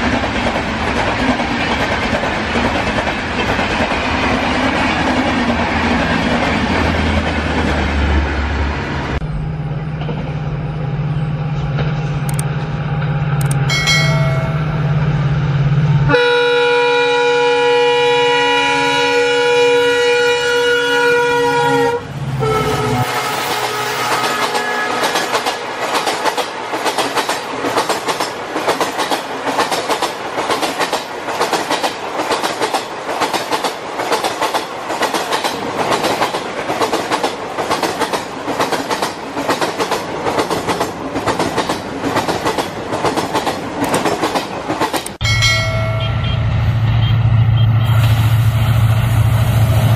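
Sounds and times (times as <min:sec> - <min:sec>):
train wheels clacking on rails: 0:00.0 - 0:08.0, 0:23.2 - 0:46.4
train horn blast: 0:16.0 - 0:25.7, 0:45.9 - 0:48.8.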